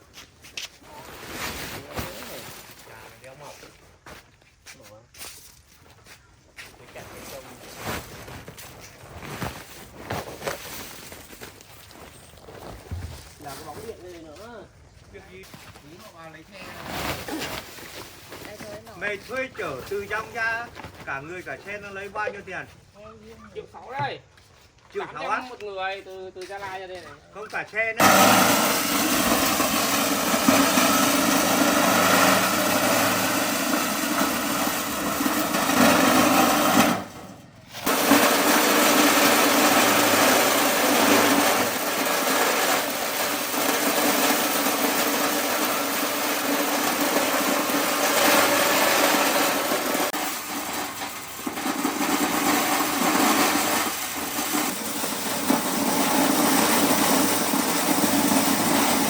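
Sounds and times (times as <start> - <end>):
small engine running: 28.0 - 37.1.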